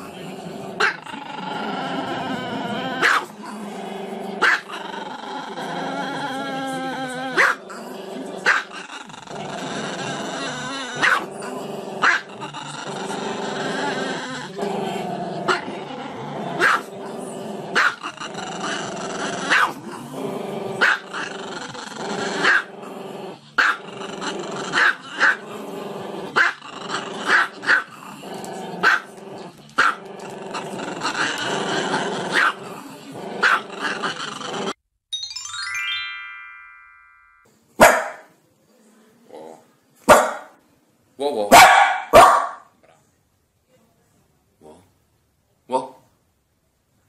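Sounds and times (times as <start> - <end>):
descending chime tones: 35.1 - 37.5
music: 35.1 - 37.5.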